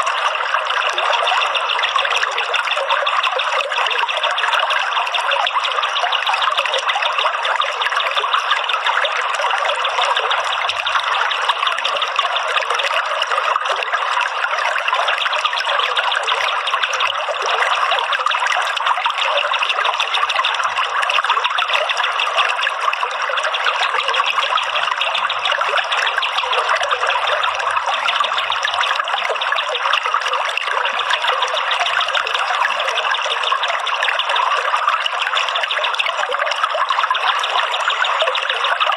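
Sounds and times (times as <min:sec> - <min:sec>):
trickling running water: 0:00.0 - 0:38.9.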